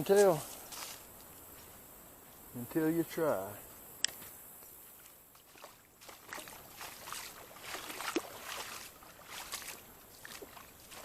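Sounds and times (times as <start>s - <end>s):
wading through water: 4.8s - 11.0s.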